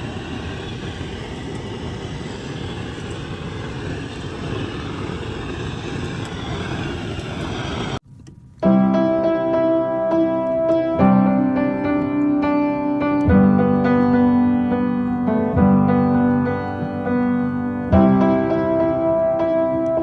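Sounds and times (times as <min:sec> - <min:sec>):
low rumbling background noise: 0:00.0 - 0:08.6
piano music: 0:08.6 - 0:20.0.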